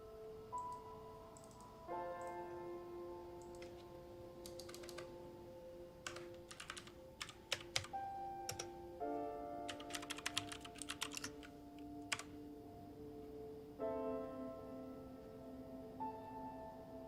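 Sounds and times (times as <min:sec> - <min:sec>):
soft background music: 0:00.0 - 0:17.0
keyboard typing clicks: 0:00.6 - 0:02.4, 0:03.4 - 0:05.1, 0:06.0 - 0:08.7, 0:09.7 - 0:12.4.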